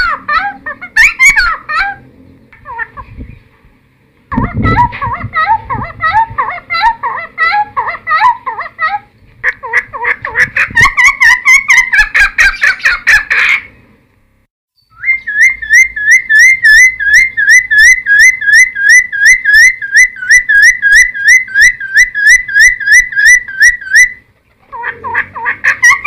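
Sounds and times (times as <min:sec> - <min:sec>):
bird chattering: 0:04.3 - 0:13.8, 0:15.0 - 0:26.0
bird whistled notes: 0:14.8 - 0:24.2.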